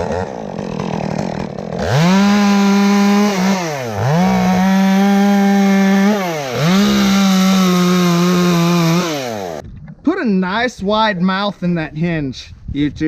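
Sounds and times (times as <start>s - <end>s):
chainsaw cutting at full throttle: 0.0s - 9.6s.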